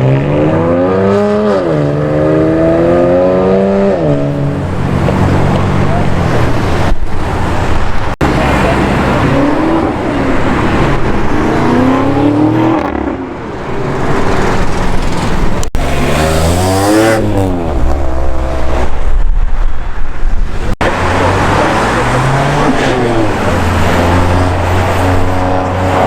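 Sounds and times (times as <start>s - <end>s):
engine revving: 0.0s - 6.4s, 14.1s - 19.0s, 20.8s - 26.0s
supercar engines accelerating: 20.8s - 26.0s.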